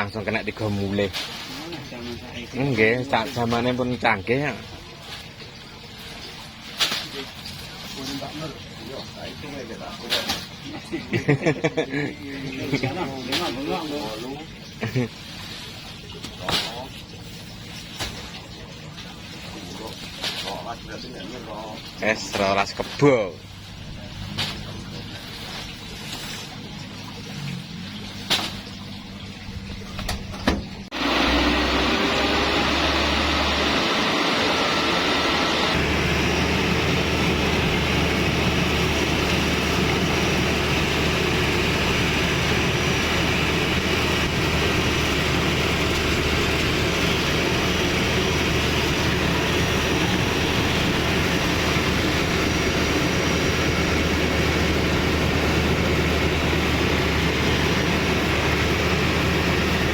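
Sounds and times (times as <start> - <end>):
harvester engine and threshing: 21.8 - 59.9.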